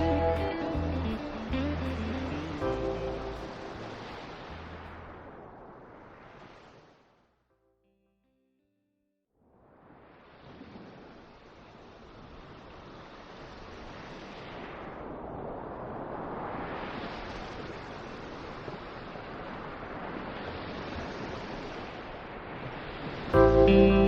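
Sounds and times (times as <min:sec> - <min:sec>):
wind blowing: 0:00.0 - 0:06.9.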